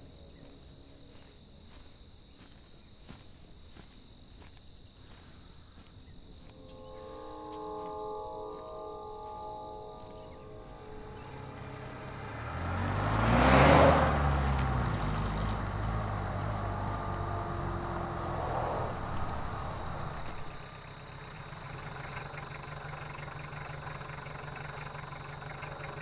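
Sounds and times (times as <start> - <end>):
truck engine idling: 7.4 - 26.0
pickup truck driving past: 9.2 - 26.0.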